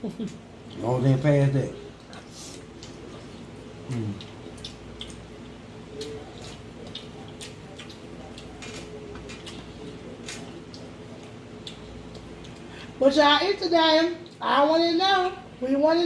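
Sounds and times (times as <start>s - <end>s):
steady low hum: 0.0s - 16.0s
wet chewing clicks and smacks: 2.0s - 12.7s.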